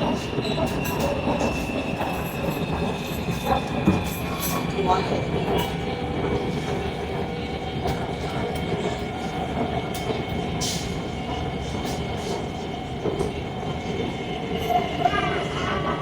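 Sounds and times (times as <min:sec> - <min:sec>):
metro train rumble: 0:00.0 - 0:16.0.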